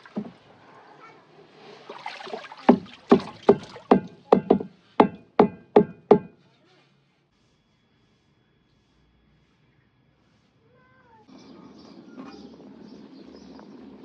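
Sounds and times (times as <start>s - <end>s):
sharp knocks with brief ring: 2.7s - 6.4s.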